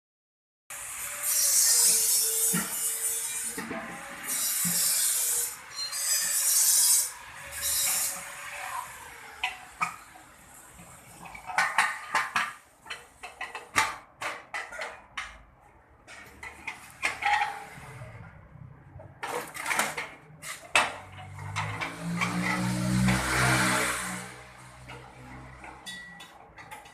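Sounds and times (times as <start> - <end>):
metal rasping scrapes: 1.0 - 10.1.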